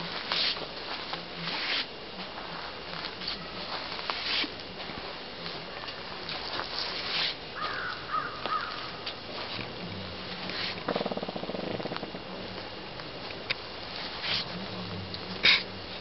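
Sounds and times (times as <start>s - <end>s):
bird calling: 7.6s - 9.1s.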